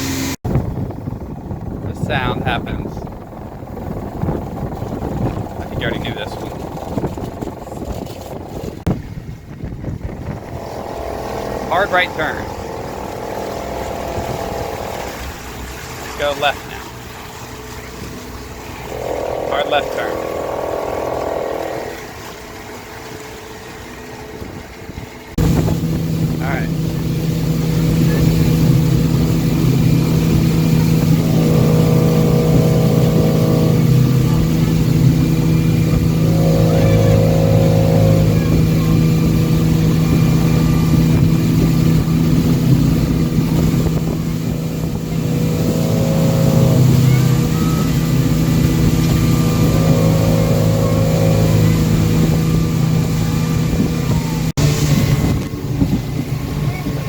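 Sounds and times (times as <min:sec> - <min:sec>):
boat engine running: 0:00.0 - 0:57.0
whining tone: 0:10.1 - 0:16.8, 0:17.5 - 0:23.1, 0:25.4 - 0:57.0.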